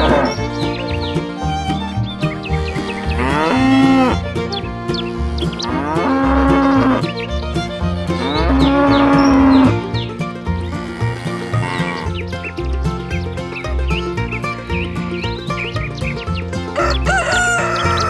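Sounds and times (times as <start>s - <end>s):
cow mooing: 0.0s - 0.4s, 2.7s - 4.2s, 5.1s - 7.1s, 8.1s - 9.9s, 10.6s - 12.2s
background music with steady beat: 0.1s - 18.0s.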